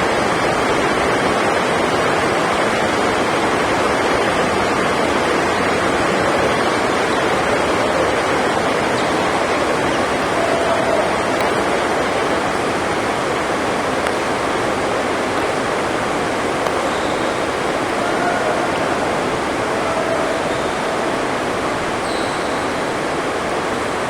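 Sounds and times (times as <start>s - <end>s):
heavy rain on a roof: 0.0s - 24.0s
faint ticks: 14.0s - 14.2s.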